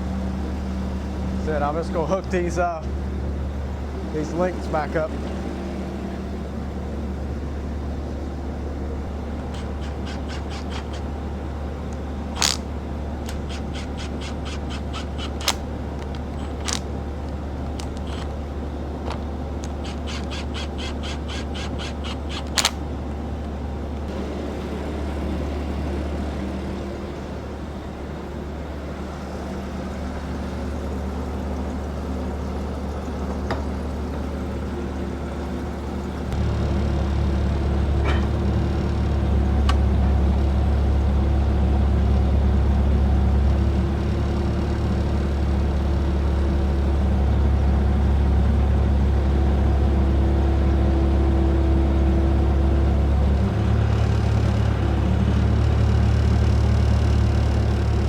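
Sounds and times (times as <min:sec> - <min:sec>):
low machine hum: 0:00.0 - 0:58.0
sharp clicks: 0:09.5 - 0:11.2, 0:11.9 - 0:18.4, 0:19.0 - 0:23.2.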